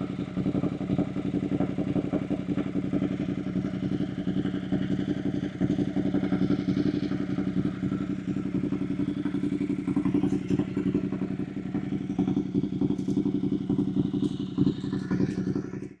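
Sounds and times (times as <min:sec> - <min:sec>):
motorcycle engine running steadily: 0:00.0 - 0:16.0.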